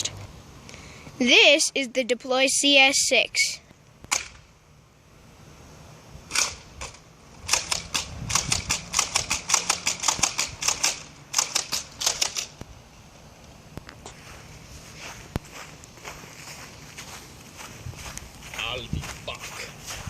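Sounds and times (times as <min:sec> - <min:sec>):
dart blaster clicks and snaps: 0:04.0 - 0:04.4, 0:06.3 - 0:12.7.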